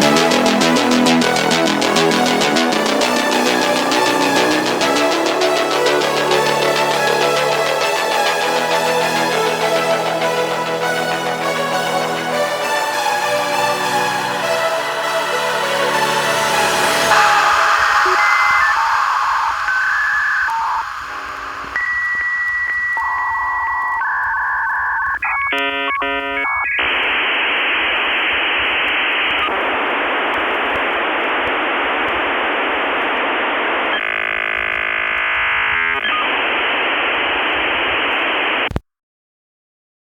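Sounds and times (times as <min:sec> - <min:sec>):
line static hiss: 0:00.0 - 0:38.8
electronic beeps and tones: 0:16.7 - 0:29.6
dialing tones: 0:16.9 - 0:38.8.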